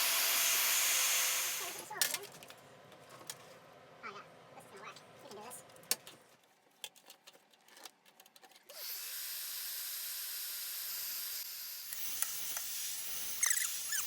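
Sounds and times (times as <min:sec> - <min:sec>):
heat gun blowing hot air: 0:00.0 - 0:01.9.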